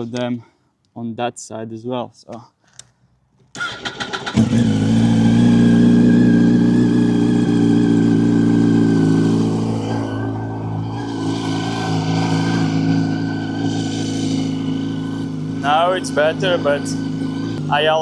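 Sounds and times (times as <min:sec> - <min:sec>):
motorcycle engine idling: 0:04.2 - 0:10.7.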